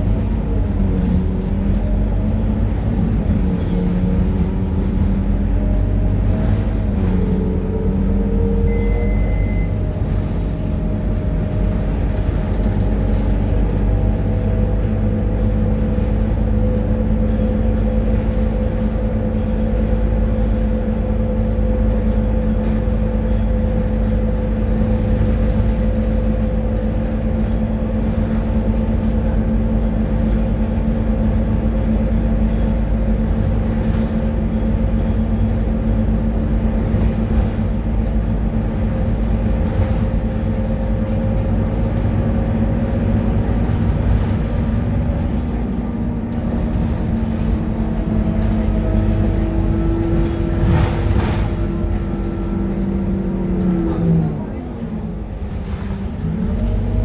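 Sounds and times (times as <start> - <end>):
bus diesel engine droning: 0.0 - 57.0
short electronic beep: 8.7 - 9.9.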